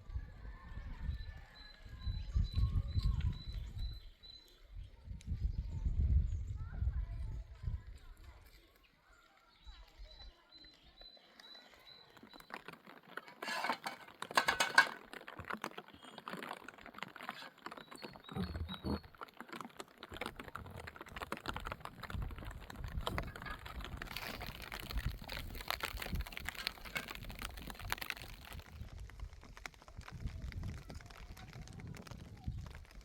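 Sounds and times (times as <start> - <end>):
small hard objects clattering: 11.0 - 33.0.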